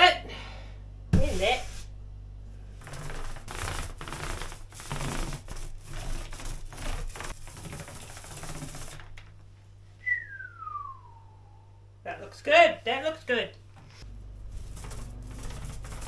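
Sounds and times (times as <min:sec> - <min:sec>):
paintbrush brushing on wood: 0:01.2 - 0:01.9, 0:13.9 - 0:16.0.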